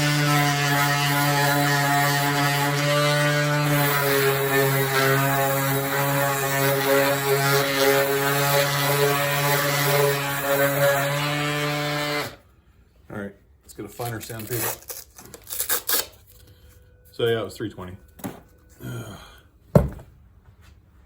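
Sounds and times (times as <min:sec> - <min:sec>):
electric sander running: 0:00.0 - 0:12.4.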